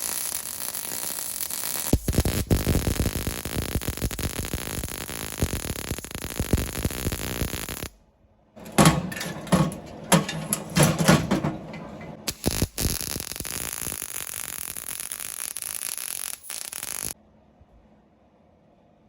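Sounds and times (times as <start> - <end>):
welding arc crackling: 0.0 - 8.0, 12.3 - 17.2.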